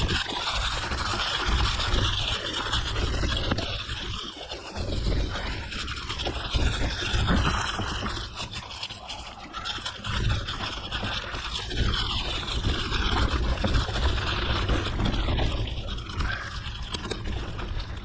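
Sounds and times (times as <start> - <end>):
bike tyres rolling on gravel: 0.0 - 18.0
wind buffeting microphone: 0.0 - 18.0.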